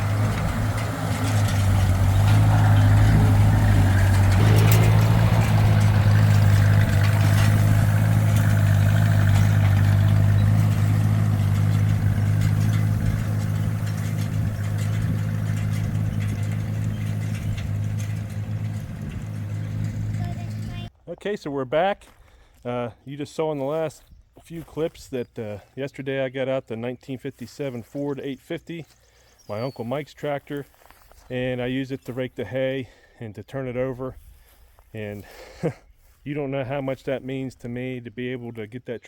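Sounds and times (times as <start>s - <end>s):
tractor engine running: 0.0s - 20.9s.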